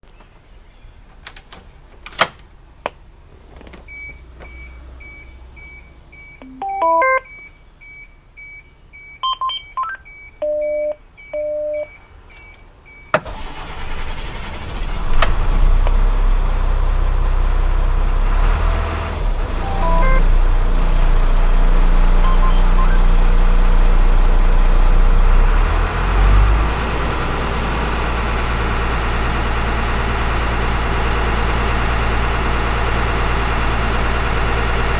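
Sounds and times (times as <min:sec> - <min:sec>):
diesel engine starting and idling: 0:03.8 - 0:11.8, 0:12.7 - 0:34.9
dashboard warning beeps: 0:03.9 - 0:13.2, 0:19.6 - 0:20.4, 0:22.2 - 0:23.3.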